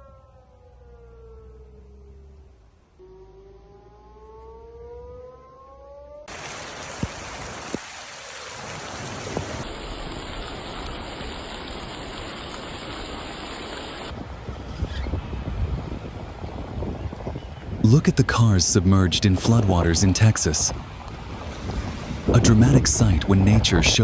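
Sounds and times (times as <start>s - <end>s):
siren winding up: 3.0s - 6.3s
heavy rain: 6.3s - 14.2s.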